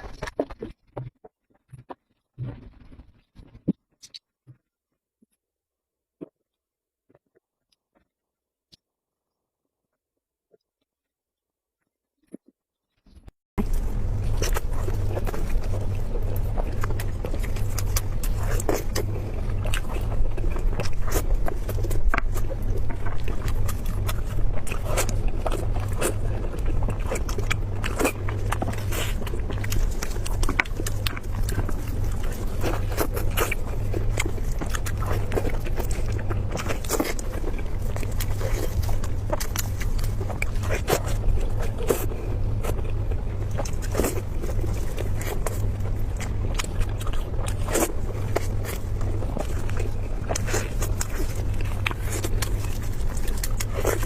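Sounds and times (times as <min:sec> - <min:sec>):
steady low hum: 0:13.6 - 0:54.0
wet chewing clicks and smacks: 0:13.6 - 0:54.0.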